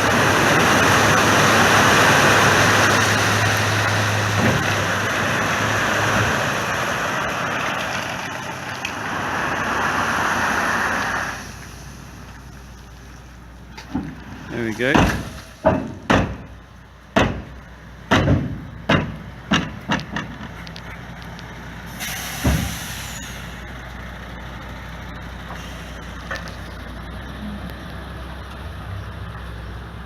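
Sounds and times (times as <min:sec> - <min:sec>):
air hiss with thump: 0:21.9 - 0:23.5.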